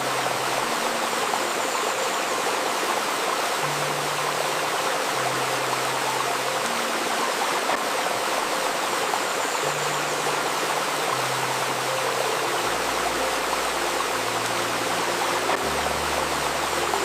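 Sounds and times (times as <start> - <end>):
river babbling over stones: 0.0 - 17.0.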